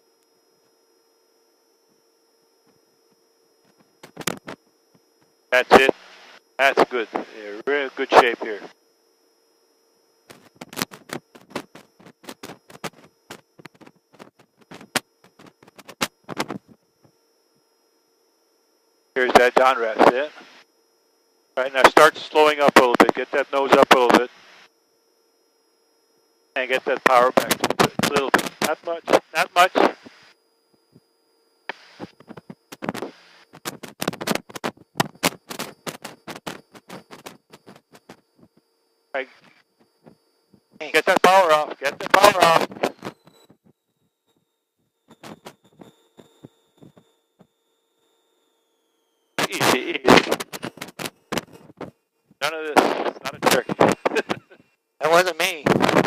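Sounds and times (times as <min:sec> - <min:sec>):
faint electronic whine: 0:00.0 - 0:56.0
headset crackling and clicking: 0:10.3 - 0:17.1, 0:31.7 - 0:38.6, 0:50.2 - 0:52.0
microphone crackling: 0:27.2 - 0:30.2, 0:31.7 - 0:38.5, 0:49.4 - 0:54.6, 0:55.6 - 0:56.0.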